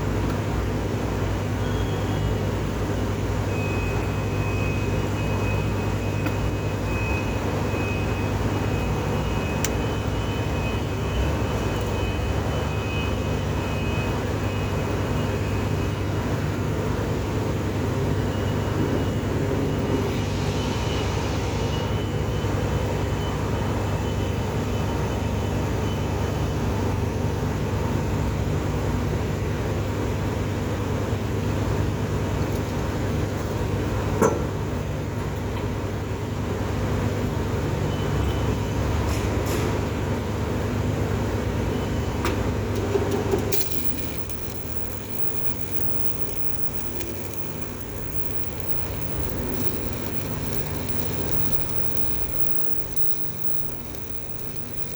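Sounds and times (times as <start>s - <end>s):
welding arc crackling: 42.4s - 54.9s
low hum: 43.5s - 54.9s.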